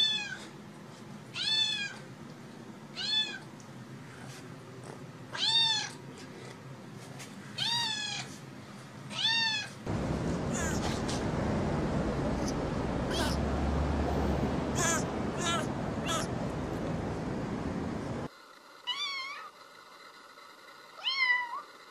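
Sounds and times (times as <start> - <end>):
kitten meowing: 3.0 - 3.4, 5.4 - 6.0, 14.8 - 16.3.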